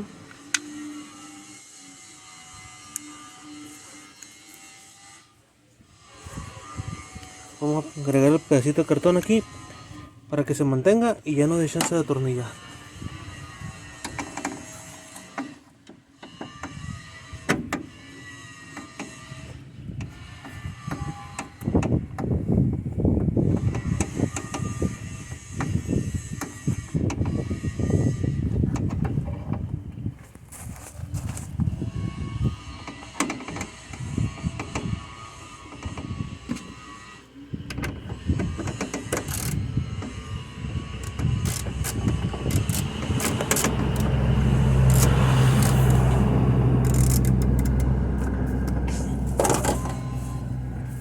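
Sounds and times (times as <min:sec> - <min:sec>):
car engine humming: 0:36.6 - 0:51.0
uneven low rumble: 0:39.5 - 0:51.0
hand tool clicks and knocks: 0:41.1 - 0:44.2.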